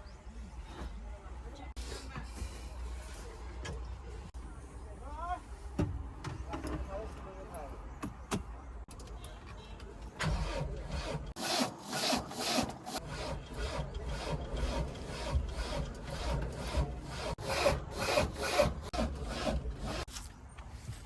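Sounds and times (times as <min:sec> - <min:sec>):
rasping scraping strokes: 0:10.2 - 0:20.3.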